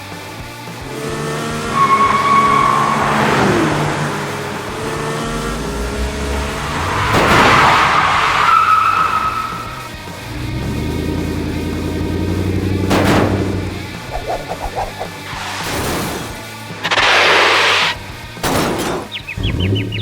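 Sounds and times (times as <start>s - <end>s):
cartoon tires squealing: 1.4s - 10.0s, 16.8s - 18.0s.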